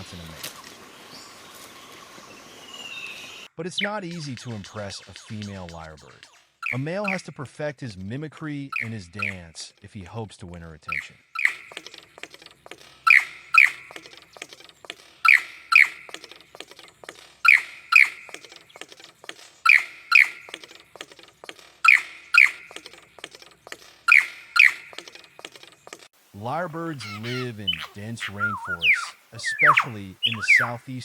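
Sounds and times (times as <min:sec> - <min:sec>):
lyrebird sharp bright notes: 0:02.9 - 0:07.5, 0:08.6 - 0:09.8, 0:10.8 - 0:31.0
rapid bird clicks: 0:03.8 - 0:07.4, 0:08.4 - 0:09.6, 0:10.9 - 0:26.1, 0:27.2 - 0:31.0.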